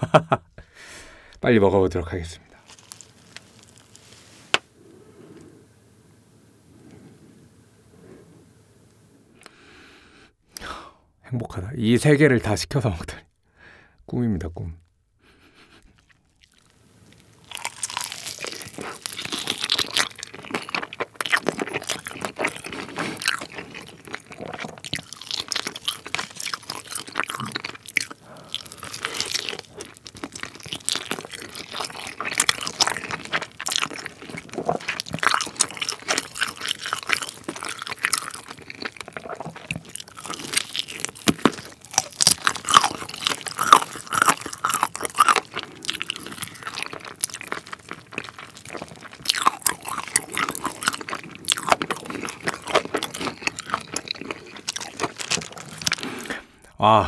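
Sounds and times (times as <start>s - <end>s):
crunching and wet chewing: 2.5s - 4.2s, 15.6s - 56.8s.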